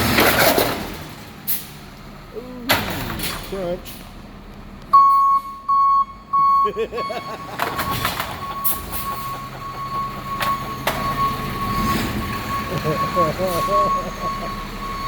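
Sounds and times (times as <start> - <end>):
electronic beeper: 5.0 - 15.0
truck engine running: 5.5 - 15.0.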